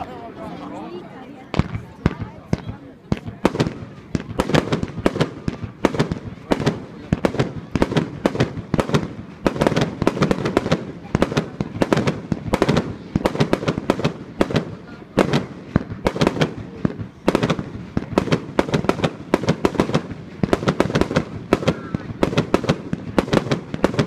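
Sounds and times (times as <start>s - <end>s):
fireworks and firecrackers banging: 0.0s - 24.0s.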